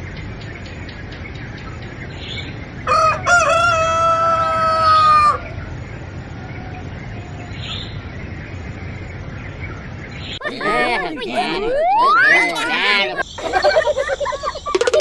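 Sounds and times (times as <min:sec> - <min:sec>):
rooster crowing: 0:02.9 - 0:05.6.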